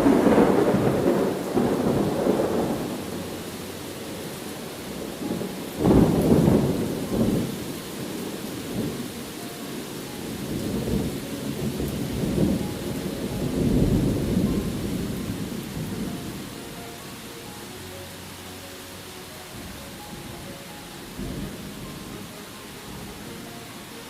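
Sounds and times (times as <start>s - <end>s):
thunderclap and rolling rumbles: 0.0s - 9.1s, 10.4s - 16.6s, 19.5s - 22.2s
steady rain: 0.0s - 24.0s.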